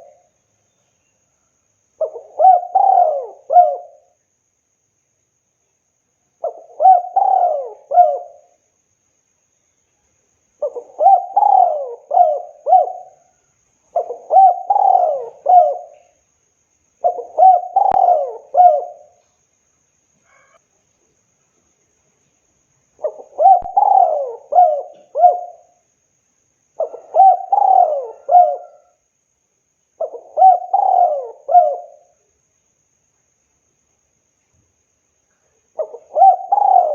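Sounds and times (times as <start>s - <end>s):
dove cooing: 0.0s - 0.2s, 2.0s - 4.1s, 6.4s - 8.5s, 10.6s - 13.3s, 13.9s - 16.2s, 17.0s - 19.2s, 23.0s - 25.8s, 26.8s - 29.0s, 30.0s - 32.2s, 35.7s - 36.9s.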